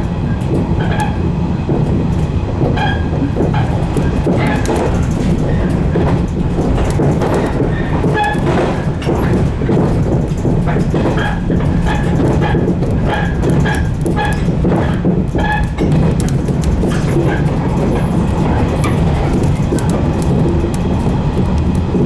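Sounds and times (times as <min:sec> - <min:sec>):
train motors and wheels rumbling: 0:00.0 - 0:22.0
wheel clicks on rails: 0:00.0 - 0:22.0
ringing tones from rails: 0:11.2 - 0:19.4.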